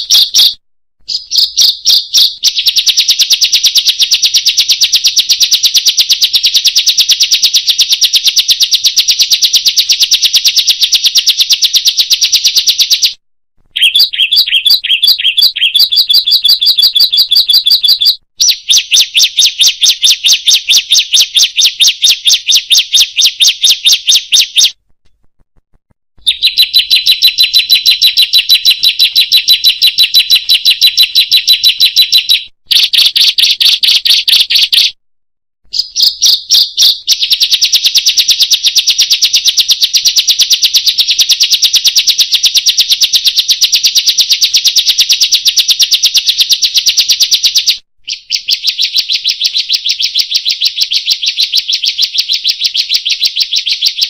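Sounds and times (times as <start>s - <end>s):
high-pitched bird trills: 0.0s - 8.0s, 13.7s - 24.8s, 26.2s - 35.0s, 35.7s - 37.7s.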